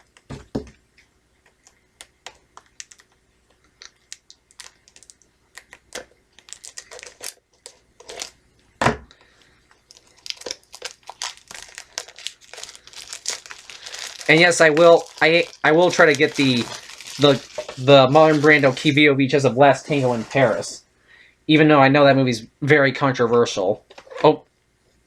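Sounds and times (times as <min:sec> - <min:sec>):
plastic shrink wrap crinkling: 0:01.5 - 0:08.4, 0:09.2 - 0:19.0.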